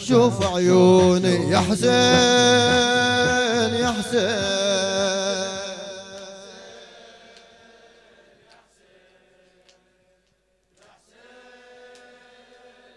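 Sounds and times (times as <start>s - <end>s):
person chanting long notes: 0.0s - 7.2s.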